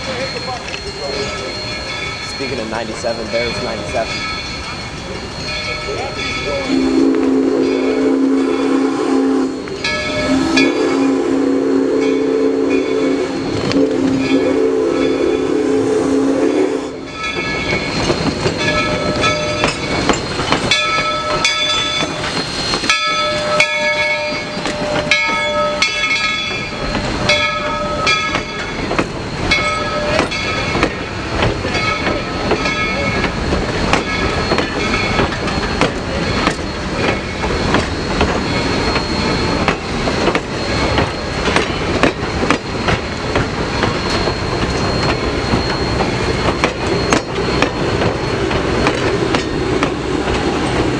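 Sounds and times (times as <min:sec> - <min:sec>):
ringing bell: 0:00.0 - 0:06.8, 0:09.7 - 0:11.0, 0:17.1 - 0:30.8
train wheels clicking over rails: 0:16.9 - 0:50.9.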